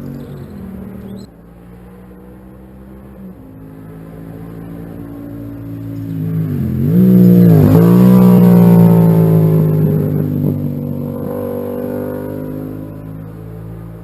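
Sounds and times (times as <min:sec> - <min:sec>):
motorcycle engine accelerating hard: 0:00.0 - 0:14.0.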